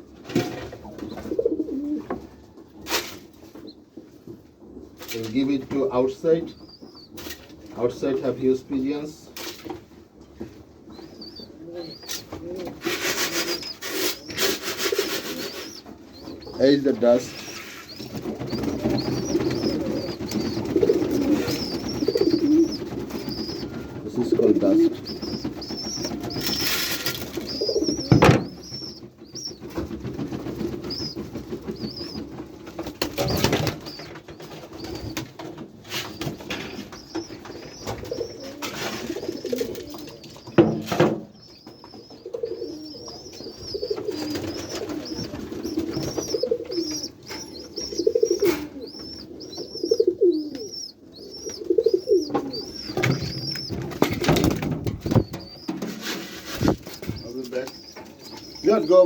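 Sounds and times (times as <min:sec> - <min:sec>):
pigeons cooing: 0:00.0 - 0:59.0
sharp knocks: 0:25.6 - 0:31.2.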